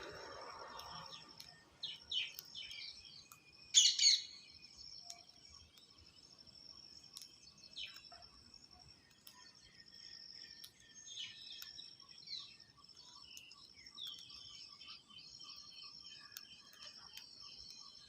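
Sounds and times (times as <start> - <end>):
birds chirping: 0.0 - 18.0
insect trill: 0.0 - 18.0.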